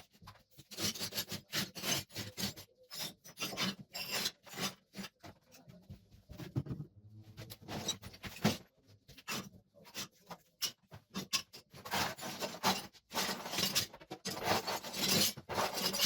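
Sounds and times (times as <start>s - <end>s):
hand tool scraping hard surface: 0.2s - 5.5s, 9.2s - 16.0s.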